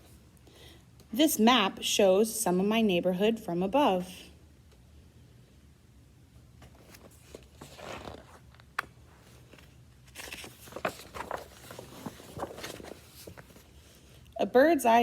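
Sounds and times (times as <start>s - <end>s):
faint rustling: 6.6s - 14.0s.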